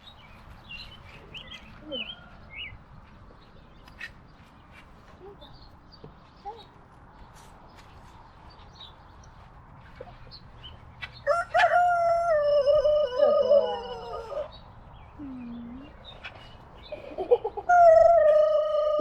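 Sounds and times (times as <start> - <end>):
rooster crowing: 11.3 - 14.5.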